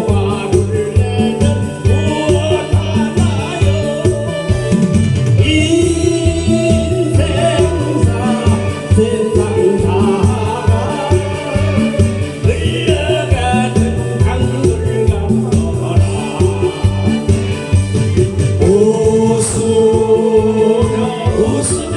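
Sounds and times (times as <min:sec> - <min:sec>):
song with steady bass beat: 0:00.0 - 0:21.9.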